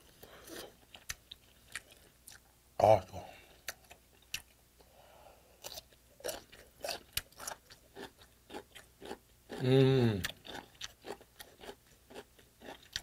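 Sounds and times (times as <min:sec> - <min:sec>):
crunching and chewing: 0:00.2 - 0:02.5, 0:05.6 - 0:13.0
person humming: 0:09.6 - 0:10.3.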